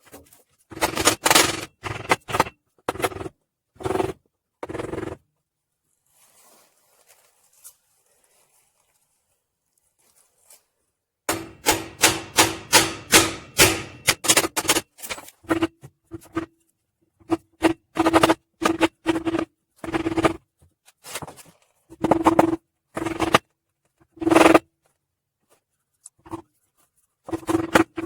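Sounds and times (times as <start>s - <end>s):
hammer blows on wood block: 11.3s - 14.6s
metallic ringing: 11.3s - 14.8s.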